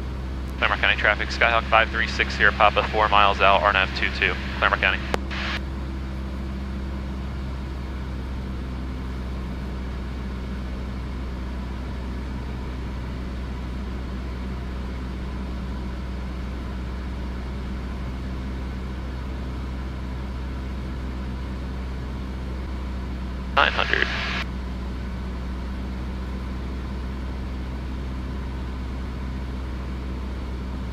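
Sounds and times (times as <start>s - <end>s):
airplane engine and propeller drone: 0.0s - 30.9s.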